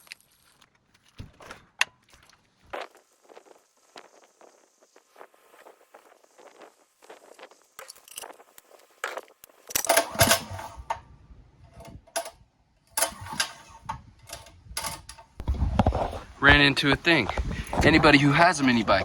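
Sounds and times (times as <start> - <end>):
light metallic clicks and rattles: 9.7 - 11.0, 11.7 - 16.2
recoil pull-starter pulls: 9.7 - 11.1, 11.7 - 16.7.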